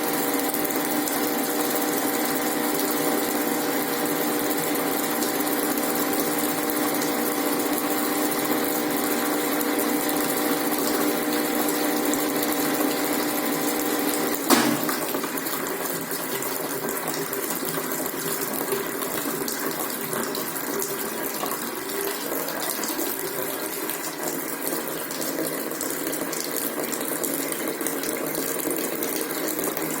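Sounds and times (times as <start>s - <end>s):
washing machine motor hum: 0.0s - 28.1s
washing machine click: 14.4s - 15.3s.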